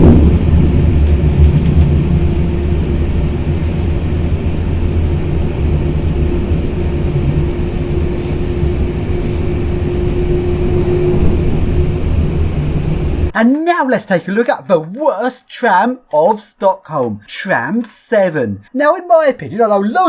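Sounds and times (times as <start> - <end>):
rail vehicle rumbling on track: 0.0 - 13.3
steady whine: 0.0 - 13.4.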